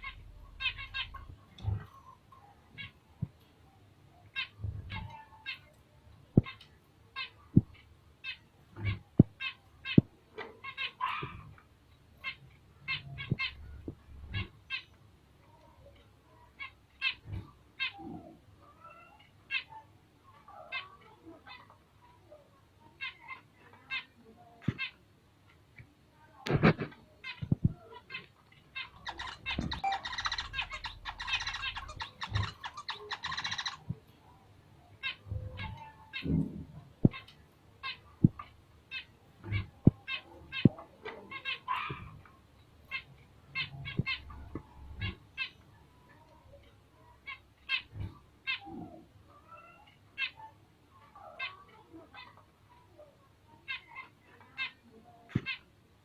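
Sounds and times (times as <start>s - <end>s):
finches chirping: 0.0s - 3.0s, 26.7s - 34.0s.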